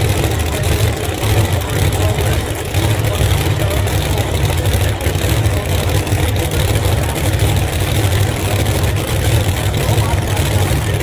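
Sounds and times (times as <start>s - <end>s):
drag racing engines idling: 0.0s - 11.0s.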